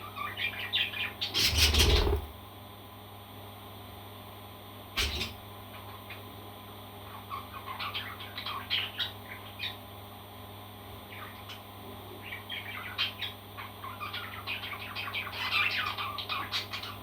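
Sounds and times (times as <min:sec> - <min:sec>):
parrot squawking: 0:01.3 - 0:02.3.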